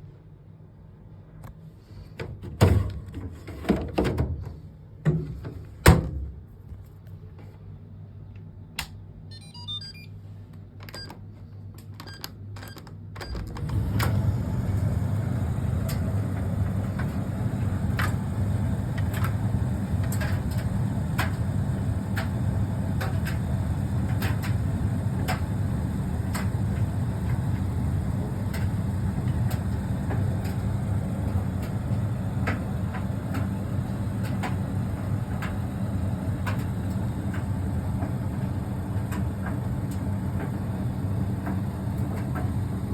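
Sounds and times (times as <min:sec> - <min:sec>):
clothes dryer rumbling: 0:13.3 - 0:42.9.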